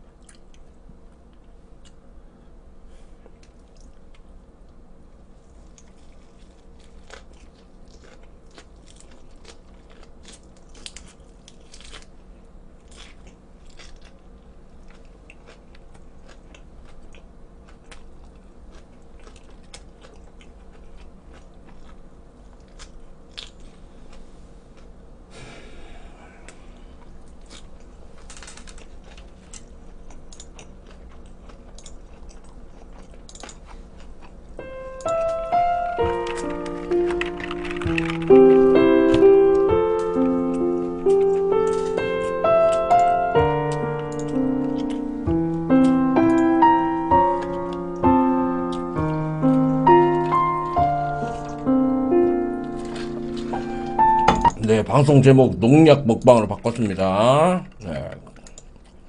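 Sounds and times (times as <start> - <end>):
crisp wet chewing crunches: 5.5 - 24.2, 27.0 - 35.4
music: 34.6 - 55.3.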